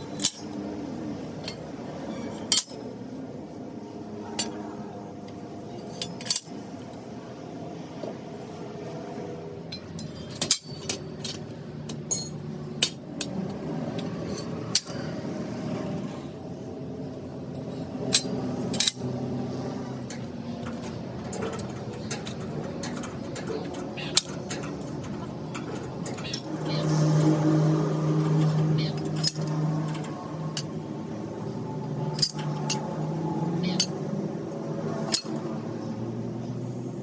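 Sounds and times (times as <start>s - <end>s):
hand tools clinking on metal: 0.0s - 2.9s, 4.3s - 4.6s, 5.8s - 6.6s, 9.7s - 13.3s, 14.0s - 15.2s, 18.0s - 19.1s, 20.0s - 34.2s, 34.9s - 35.7s.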